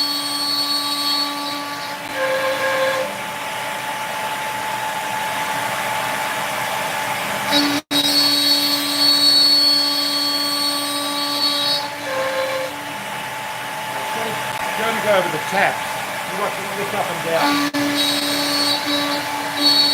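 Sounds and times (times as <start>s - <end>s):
cnc router spindle cutting: 0.0s - 19.9s
dust extractor noise: 0.0s - 19.9s
steady whine: 11.4s - 19.9s.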